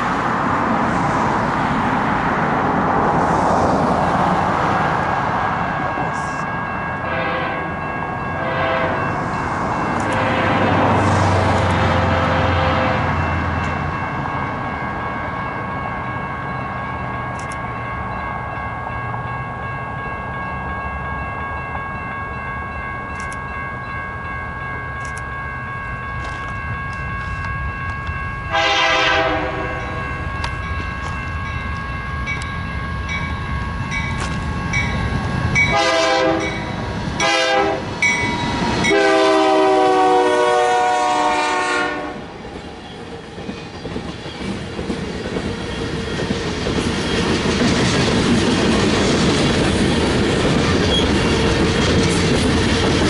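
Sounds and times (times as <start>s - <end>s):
diesel locomotive rumble: 0.0s - 23.6s
locomotive air horn blasts: 7.0s - 7.7s, 8.4s - 9.1s, 10.1s - 13.2s, 28.5s - 30.0s, 35.7s - 36.6s, 37.2s - 37.9s, 38.8s - 42.2s.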